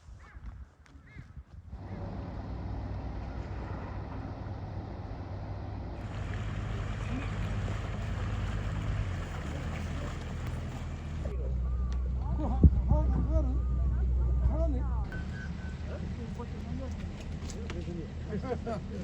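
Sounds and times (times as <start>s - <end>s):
wind noise on microphone: 0.0s - 1.8s, 12.4s - 13.6s
ferry engine humming: 1.8s - 12.4s, 13.2s - 19.0s
rushing water: 6.0s - 11.3s.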